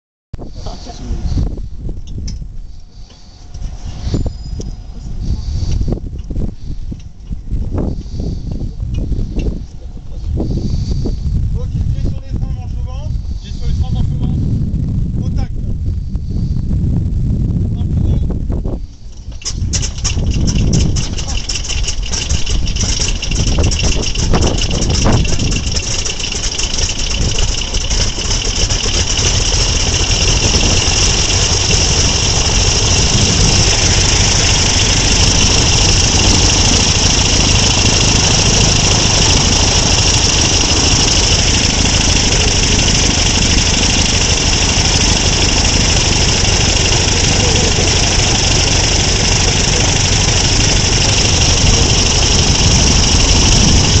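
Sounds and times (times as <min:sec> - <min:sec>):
radial aircraft engine idling: 0:18.8 - 0:54.0.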